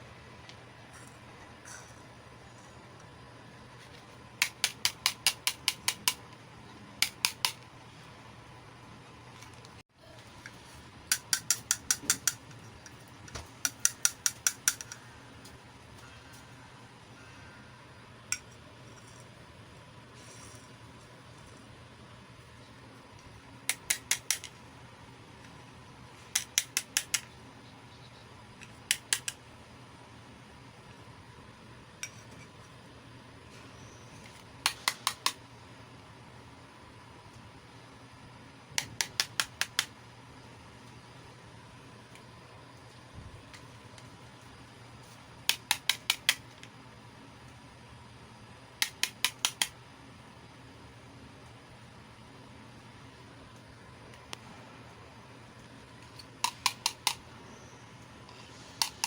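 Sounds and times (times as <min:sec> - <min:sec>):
plastic toy pieces clicking: 0:13.6 - 0:15.0.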